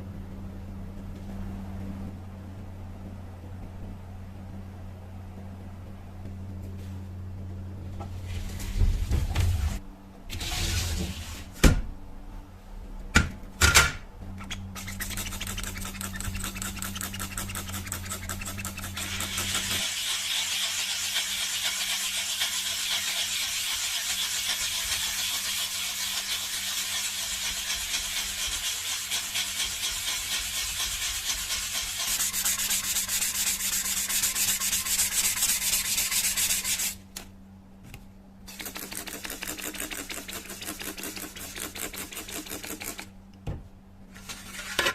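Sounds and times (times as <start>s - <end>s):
sanding on metal: 14.8s - 37.0s, 38.5s - 43.0s.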